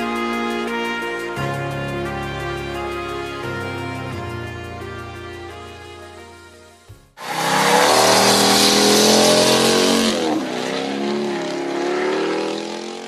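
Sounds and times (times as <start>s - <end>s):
loud tyre squeal: 7.2s - 12.8s
car engine revving high: 7.2s - 13.0s.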